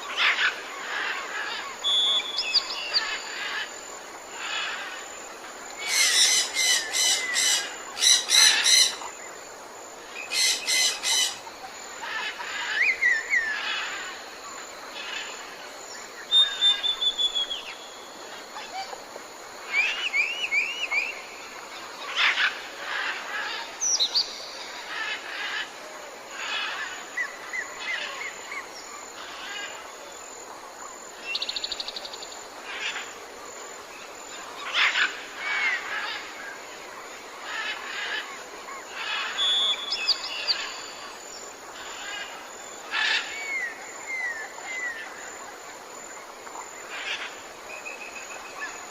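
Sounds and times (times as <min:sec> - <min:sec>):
steady background hiss: 0:00.0 - 0:48.9
birds calling: 0:05.7 - 0:09.4, 0:10.1 - 0:14.2.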